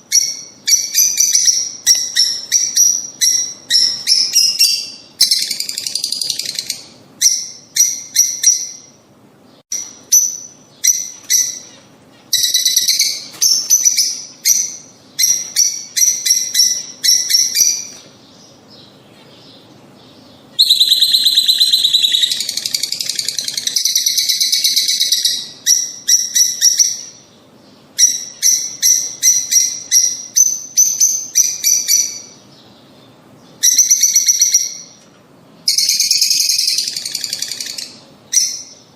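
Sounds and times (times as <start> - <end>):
lovebirds chirping: 0.0 - 38.9.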